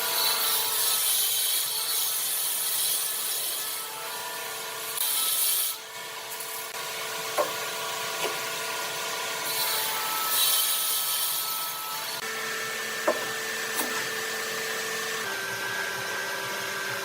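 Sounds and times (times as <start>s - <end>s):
power tool rasping wood: 0.0s - 17.0s
short knocks: 13.0s - 14.1s.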